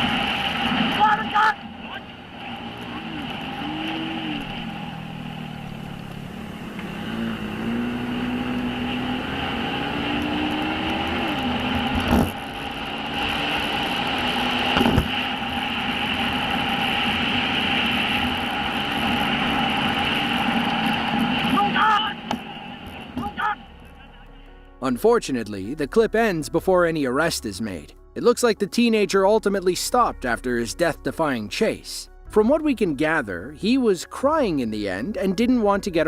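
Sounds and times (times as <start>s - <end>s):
motorcycle engine running: 0.0s - 24.4s.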